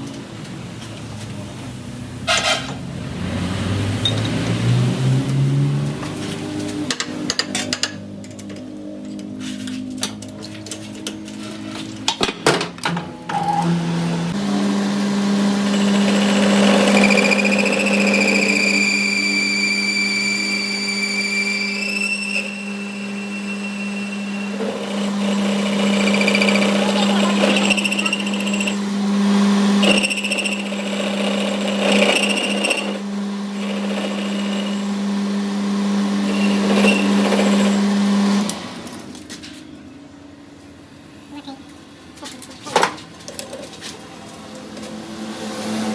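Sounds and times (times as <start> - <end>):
high machine whine: 12.8 - 34.9
electric motor humming: 13.3 - 39.0.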